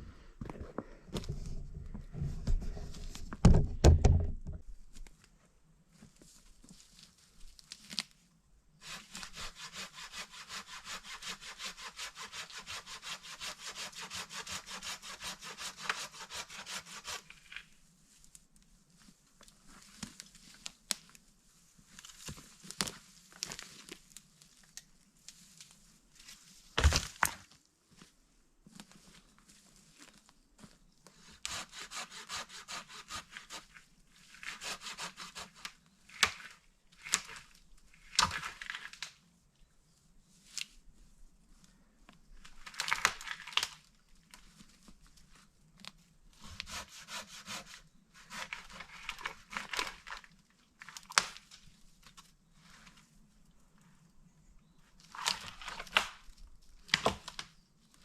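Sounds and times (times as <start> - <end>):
hand saw cutting wood: 8.8 - 17.4, 31.4 - 33.7, 34.4 - 35.7, 46.5 - 48.8.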